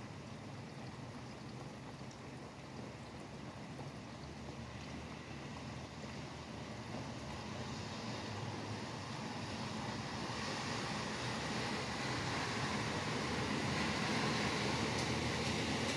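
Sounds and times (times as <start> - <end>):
traffic on wet pavement: 3.8 - 15.9
rain hiss: 4.4 - 15.9
vehicle tyre hiss approaching: 7.7 - 15.9.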